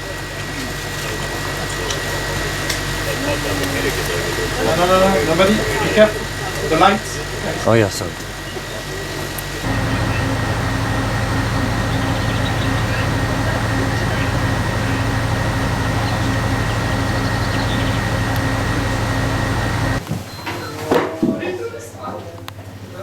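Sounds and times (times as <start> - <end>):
machine fan noise with whine: 9.4 - 20.1.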